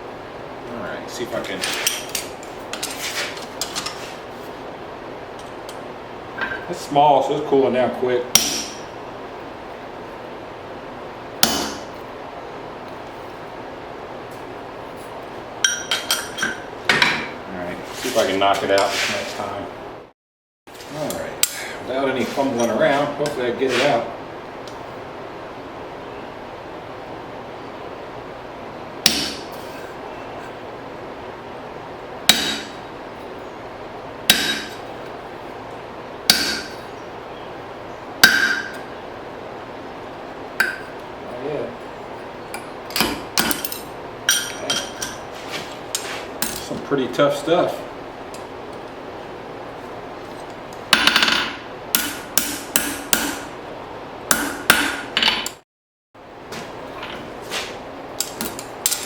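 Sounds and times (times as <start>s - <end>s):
hammer striking hole punch: 8.4s - 8.8s, 11.4s - 11.9s, 29.0s - 29.5s, 32.3s - 32.8s, 34.3s - 34.8s, 36.3s - 36.8s, 38.2s - 38.8s, 51.0s - 53.5s, 54.3s - 55.1s.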